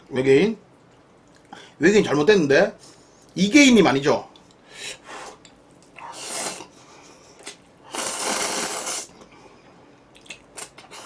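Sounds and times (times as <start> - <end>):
slurping noodles: 6.0 - 6.7, 7.4 - 9.3.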